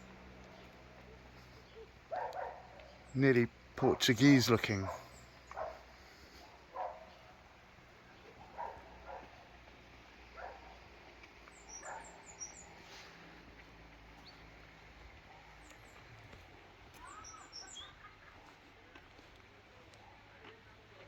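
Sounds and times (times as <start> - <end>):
small birds chirping: 0.0 - 20.8
dog barking faintly: 1.0 - 2.9, 3.9 - 7.4, 8.2 - 9.5, 10.3 - 10.9.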